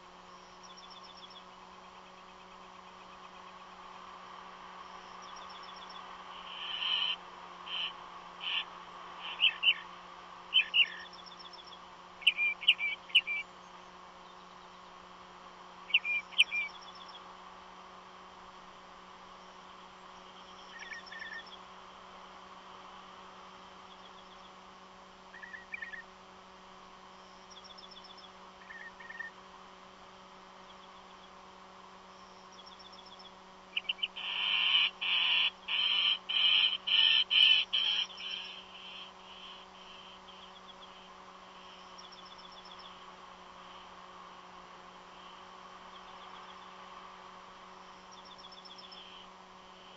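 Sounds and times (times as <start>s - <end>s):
electrical hum: 0.0s - 49.9s
bird calls: 5.1s - 9.9s, 10.5s - 15.0s, 15.9s - 17.2s, 20.1s - 21.7s, 25.3s - 26.1s, 27.5s - 29.4s, 32.5s - 43.0s, 48.1s - 49.9s.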